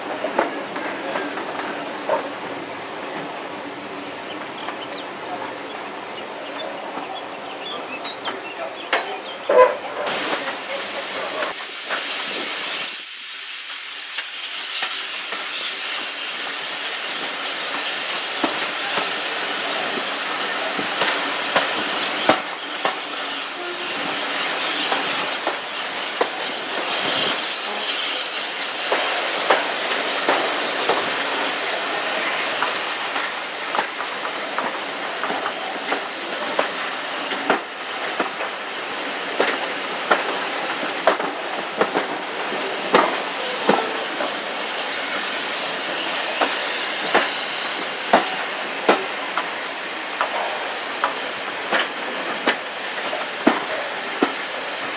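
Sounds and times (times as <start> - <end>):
train rumbling on track: 0.0 - 54.9
wheels clicking over rail joints: 13.7 - 44.5, 46.3 - 54.9.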